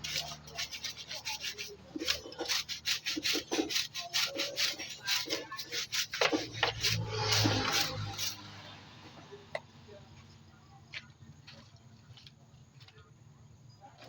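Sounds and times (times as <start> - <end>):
rapid scrubbing by hand: 0.0 - 8.5.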